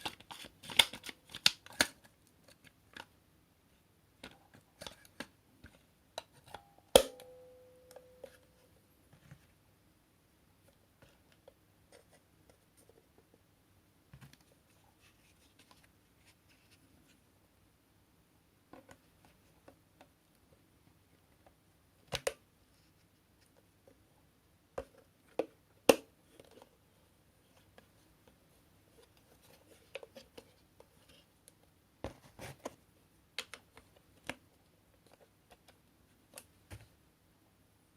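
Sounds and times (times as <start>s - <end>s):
plastic parts clicking and knocking: 0.0s - 3.2s.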